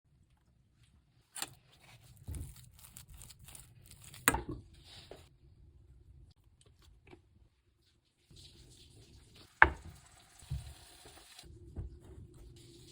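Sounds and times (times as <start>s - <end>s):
crinkling and rustling: 0.2s - 5.3s.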